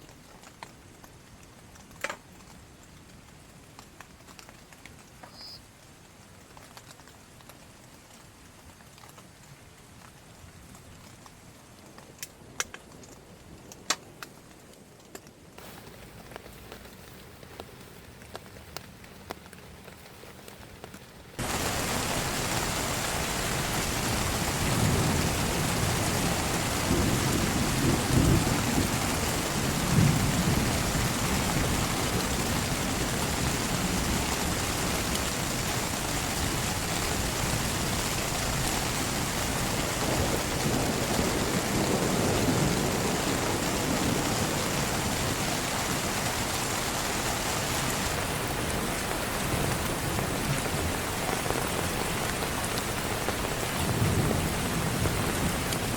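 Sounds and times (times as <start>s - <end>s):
heavy rain: 0.0s - 55.9s
thunder rumbling: 21.4s - 55.9s.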